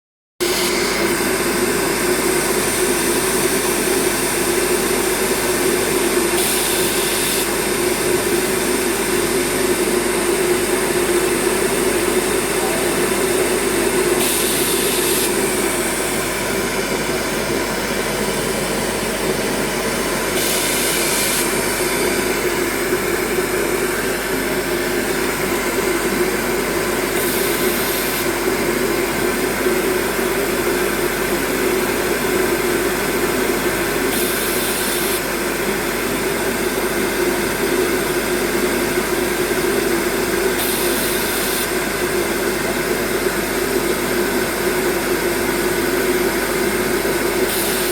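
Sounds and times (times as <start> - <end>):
welding equipment humming: 0.4 - 29.9, 34.0 - 35.3.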